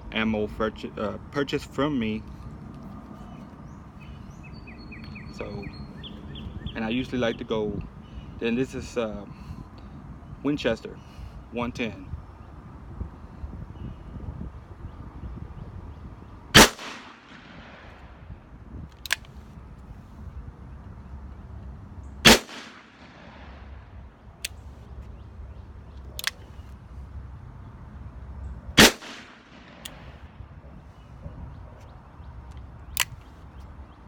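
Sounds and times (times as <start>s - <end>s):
revolver shots: 22.2s - 23.5s.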